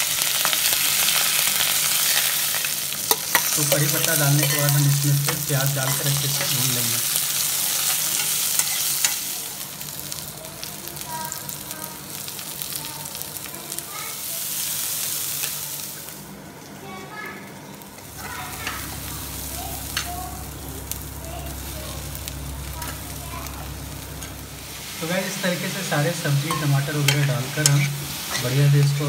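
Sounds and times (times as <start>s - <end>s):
onions sizzling in oil: 0.0s - 29.0s
metal spoon scraping a pan: 2.1s - 6.8s, 7.6s - 9.2s, 26.3s - 28.8s.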